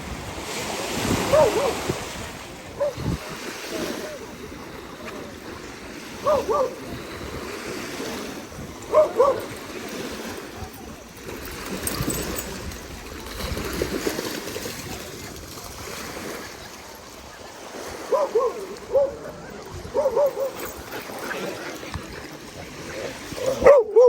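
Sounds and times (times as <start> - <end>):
water lapping at a beach: 0.0 - 24.0
dog barking: 1.2 - 2.0, 2.8 - 3.2, 6.2 - 6.8, 8.8 - 9.6, 18.0 - 21.0, 23.4 - 24.0.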